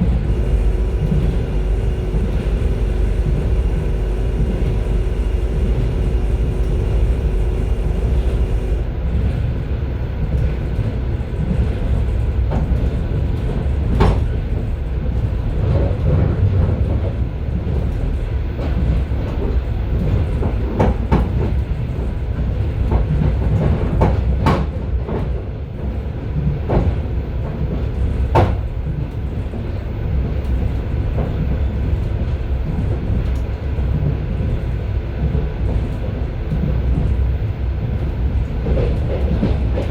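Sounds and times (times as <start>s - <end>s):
steady hum: 0.0s - 9.3s
train wheels rumbling on track: 0.0s - 39.9s.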